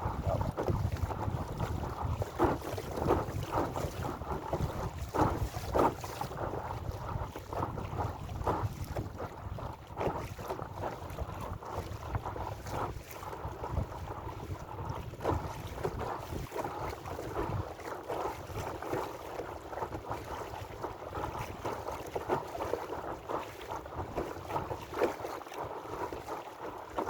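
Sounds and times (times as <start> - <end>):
water slapping against hull: 0.0 - 27.0
wind on microphone: 0.0 - 27.0.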